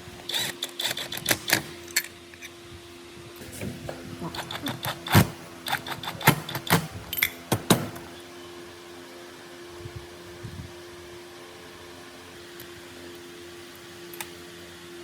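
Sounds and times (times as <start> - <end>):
steady low hum: 0.0 - 15.0
sharp knocks and clicks: 4.5 - 8.0.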